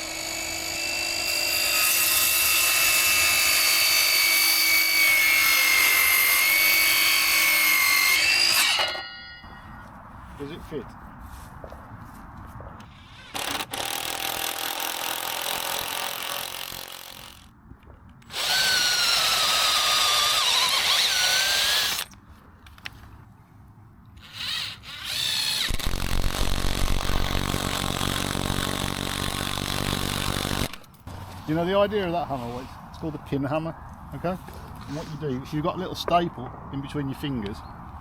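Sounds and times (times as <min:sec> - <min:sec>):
power tool running: 0:00.0 - 0:09.0, 0:24.2 - 0:31.4.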